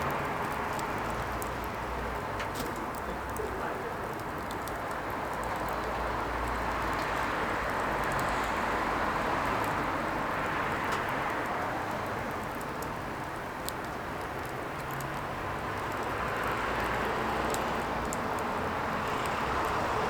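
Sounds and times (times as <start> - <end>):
firewood burning rushing: 0.0 - 5.8
sharp fire crackles: 0.0 - 20.0.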